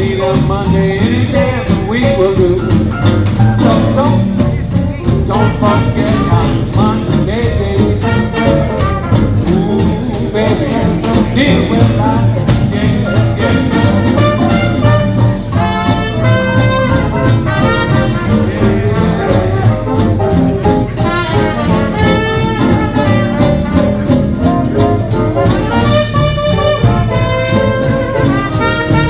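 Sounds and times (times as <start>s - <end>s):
swing band playing: 0.0s - 29.0s
brass horns melody: 5.1s - 29.0s.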